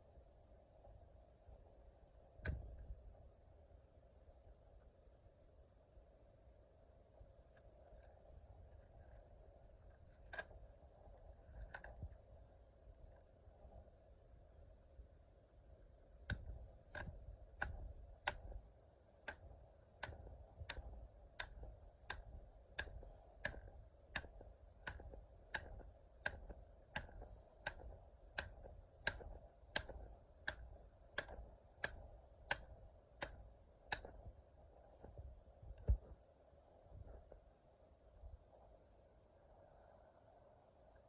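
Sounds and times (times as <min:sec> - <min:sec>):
sharp ticks: 0:19.2 - 0:34.2.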